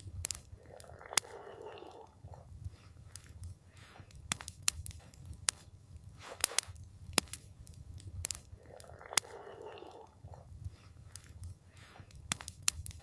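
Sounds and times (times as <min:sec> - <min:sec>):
low rumble of burning fire: 0:00.0 - 0:13.0
sharp wood pops: 0:04.3 - 0:05.6, 0:06.4 - 0:07.5, 0:12.2 - 0:13.0.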